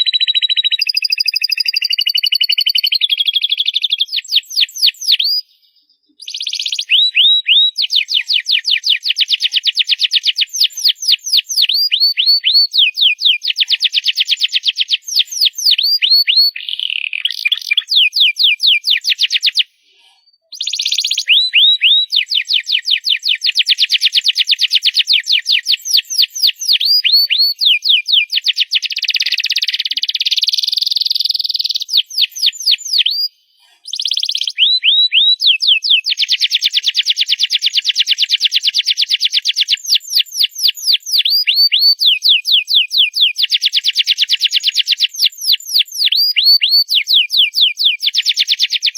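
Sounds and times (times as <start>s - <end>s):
canary singing: 0.0s - 48.9s.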